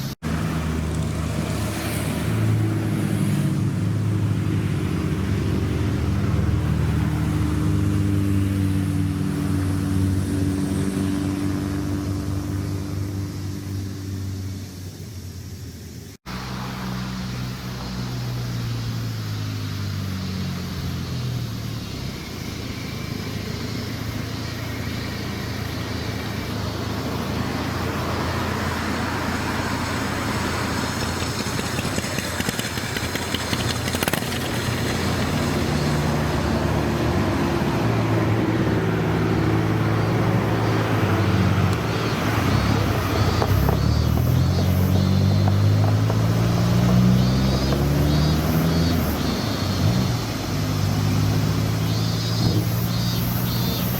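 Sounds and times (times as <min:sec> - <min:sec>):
car engine running: 0:14.3 - 0:53.9.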